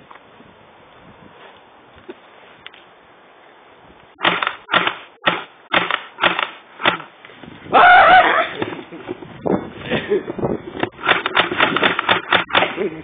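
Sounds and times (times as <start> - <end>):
bb pistol shots: 4.2 - 7.1, 10.9 - 12.8
person yelling: 7.7 - 8.6.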